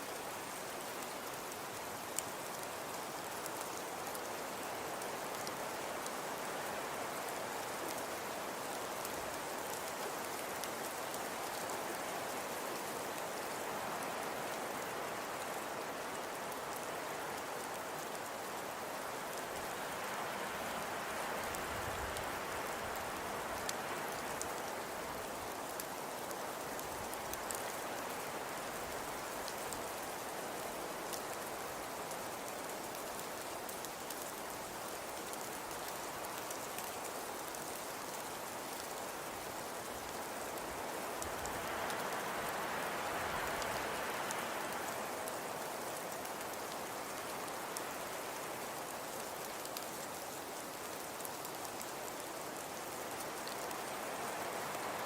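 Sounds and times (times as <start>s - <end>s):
fire crackling: 21.4s - 55.0s.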